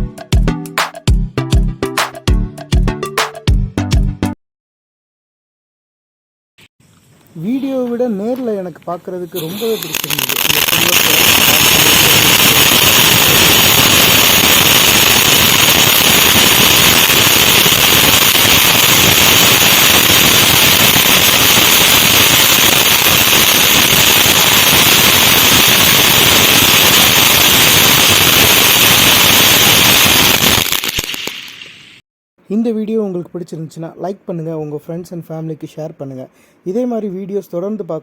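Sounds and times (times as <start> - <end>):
firework crackling: 9.3 - 32.0
fountain firework spray: 9.4 - 32.0.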